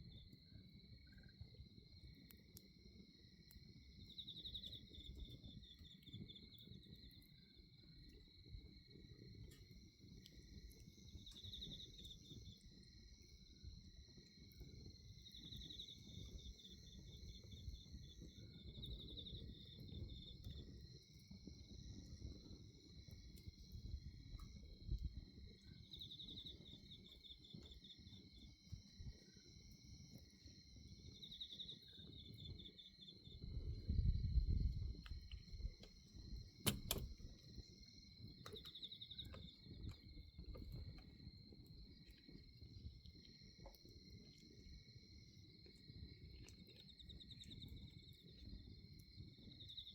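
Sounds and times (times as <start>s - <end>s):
crickets and insects chirping: 0.0s - 49.9s
fire popping: 34.5s - 41.2s.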